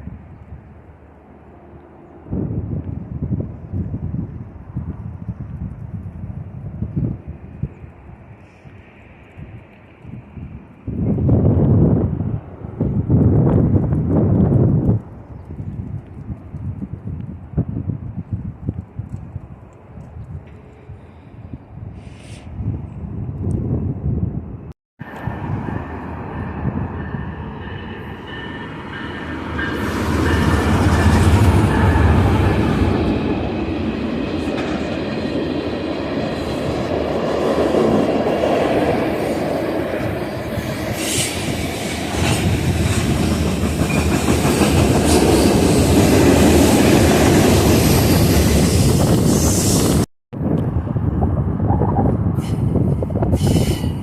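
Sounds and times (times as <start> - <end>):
train wheels on rails: 25.0 - 50.1, 52.4 - 54.0.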